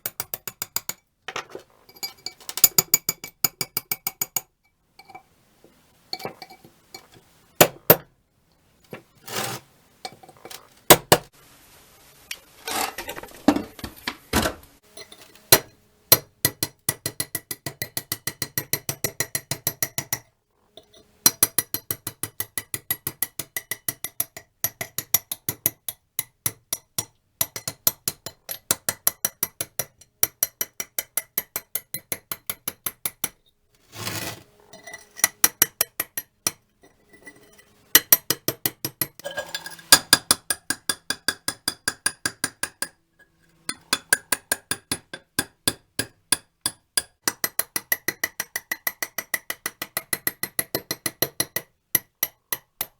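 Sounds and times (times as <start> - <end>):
metal scraping: 8.8 - 10.9, 33.8 - 35.6, 36.6 - 38.1, 39.2 - 40.1.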